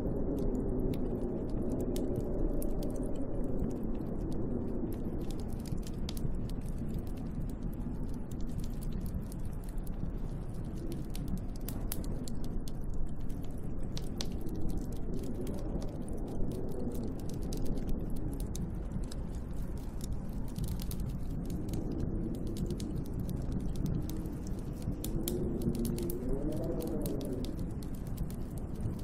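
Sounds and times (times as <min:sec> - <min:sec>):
sharp ticks and clicks: 0:00.0 - 0:29.0
snowstorm wind blowing: 0:00.0 - 0:29.0.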